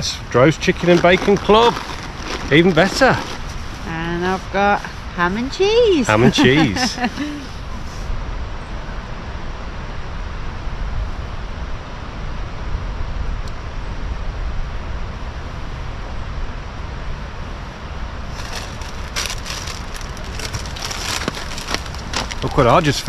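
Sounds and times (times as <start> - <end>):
wind rumble on microphone: 0.0 - 23.0
crisp packet crinkling: 0.7 - 3.8, 18.3 - 23.0.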